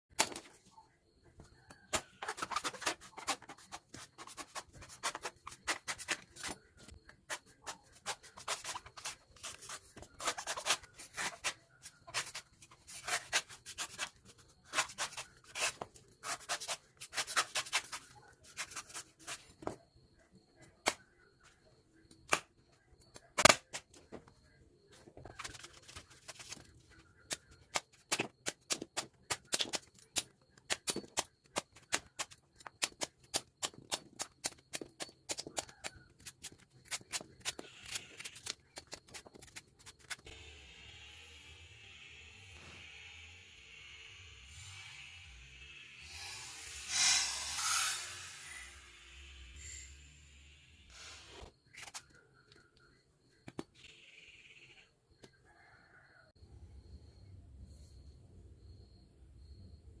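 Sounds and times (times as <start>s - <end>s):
scraping coconut: 2.0s - 6.6s, 7.2s - 19.5s.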